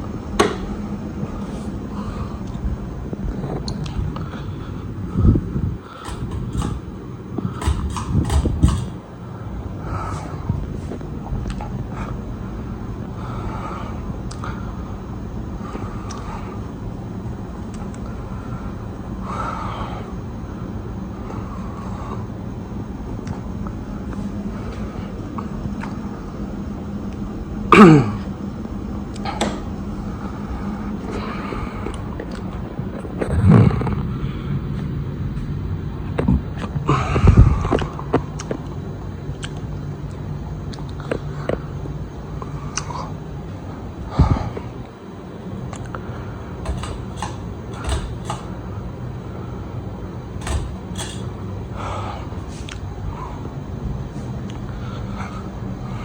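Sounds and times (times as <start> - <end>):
ceiling fan humming: 0.0 - 56.0
sharp clicks and knocks: 0.3 - 0.8, 6.0 - 9.1, 46.6 - 49.0, 50.3 - 51.5
person clearing throat: 27.7 - 28.3.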